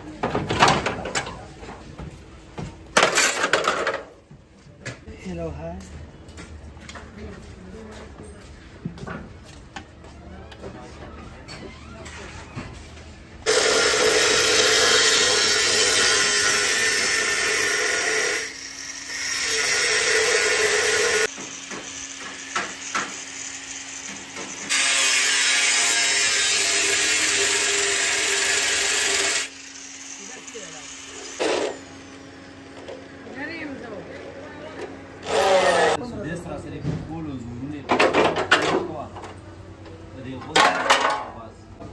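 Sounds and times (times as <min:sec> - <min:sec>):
angle grinder grinding steel: 0:13.4 - 0:32.3, 0:35.2 - 0:36.0.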